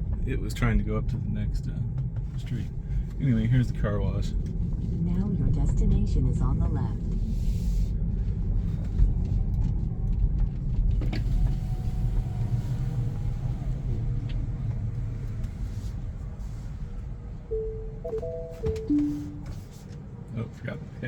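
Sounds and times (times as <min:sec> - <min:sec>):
road and tyre rumble: 0:00.0 - 0:18.8
faint thin tone: 0:17.5 - 0:19.7.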